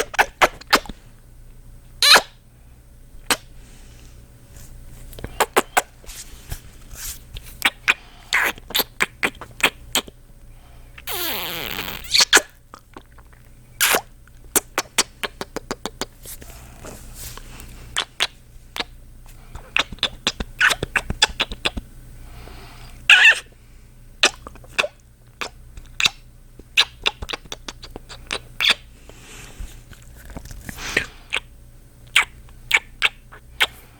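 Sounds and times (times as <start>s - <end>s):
wet kissing smacks: 0.0s - 1.0s, 11.0s - 12.5s, 13.8s - 16.1s, 19.6s - 21.8s, 24.2s - 26.2s, 26.8s - 28.8s, 32.1s - 33.8s.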